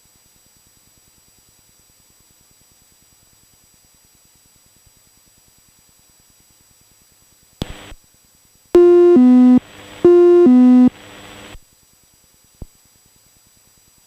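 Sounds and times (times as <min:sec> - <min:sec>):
click: 0:07.6 - 0:08.0
short crackle: 0:07.6 - 0:08.0.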